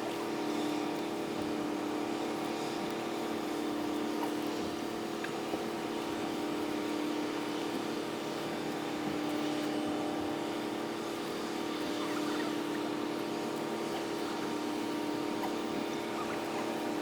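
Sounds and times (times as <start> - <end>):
boat engines humming: 7.2 - 17.0
noisy wash: 8.4 - 17.0.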